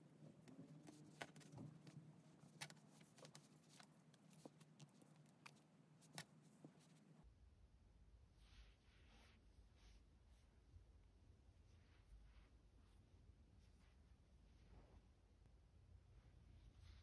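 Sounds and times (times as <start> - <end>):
soft clicks and taps: 0.0 - 7.2.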